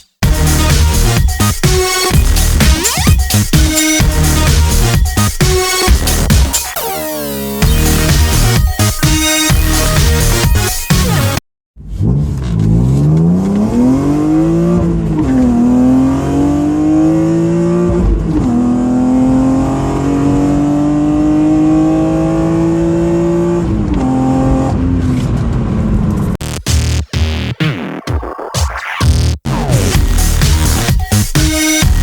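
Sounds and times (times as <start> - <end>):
car engine accelerating through gears: 11.8 - 26.4.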